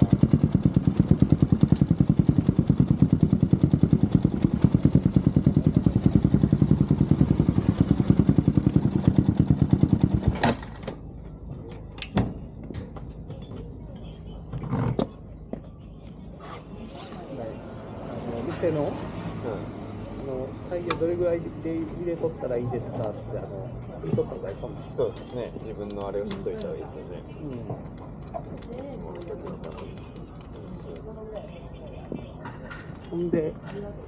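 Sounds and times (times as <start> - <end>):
motorcycle engine idling: 0.0 - 11.7.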